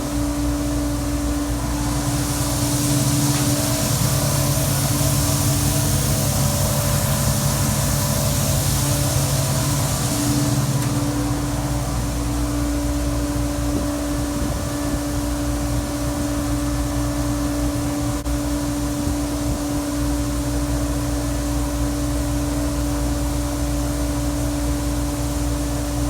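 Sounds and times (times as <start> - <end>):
combine harvester running: 0.0 - 18.6.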